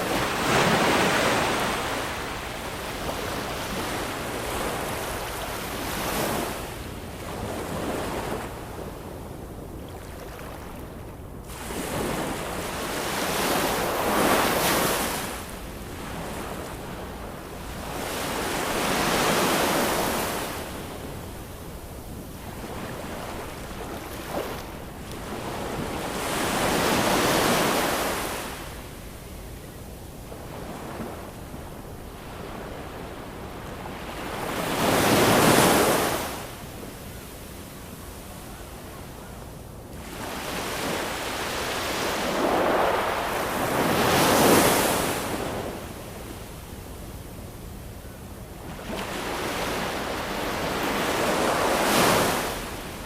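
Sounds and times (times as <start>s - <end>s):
ocean waves breaking: 0.0s - 8.7s, 22.4s - 28.6s, 40.0s - 45.8s, 48.8s - 53.0s.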